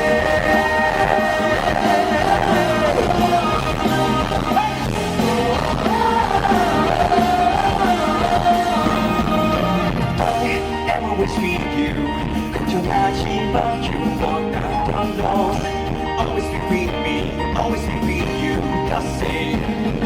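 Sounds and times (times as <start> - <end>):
singer holding long notes: 0.0 - 12.2
rock band playing loudly: 0.0 - 20.0.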